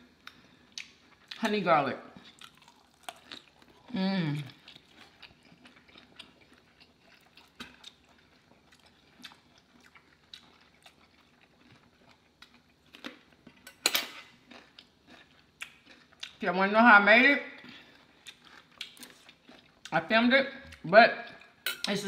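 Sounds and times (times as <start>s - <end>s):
chewing and wet mouth sounds: 0.1s - 1.6s, 2.2s - 16.5s, 17.6s - 22.0s.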